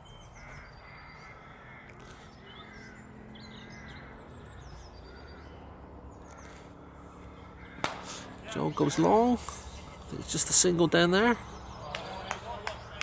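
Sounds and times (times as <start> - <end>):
faint bird calls: 0.0 - 10.3
low steady background noise: 0.0 - 13.0.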